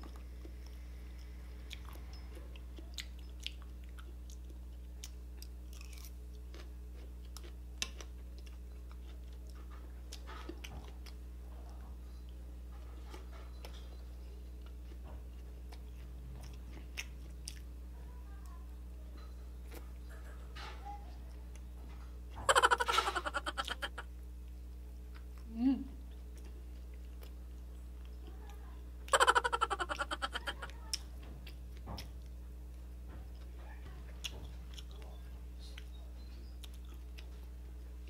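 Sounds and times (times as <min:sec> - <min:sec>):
close chewing and biting: 0:00.0 - 0:11.8, 0:14.6 - 0:17.7
steady low hum: 0:00.0 - 0:38.0.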